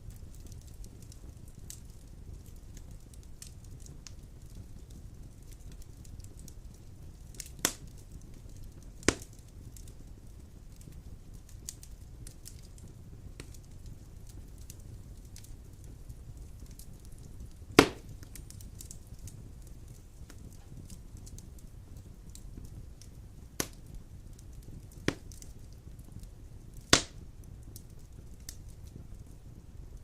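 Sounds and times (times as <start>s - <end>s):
fire crackling: 0.0s - 30.0s
fire flames rumbling: 0.0s - 30.0s
logs popping loudly: 17.8s - 18.1s.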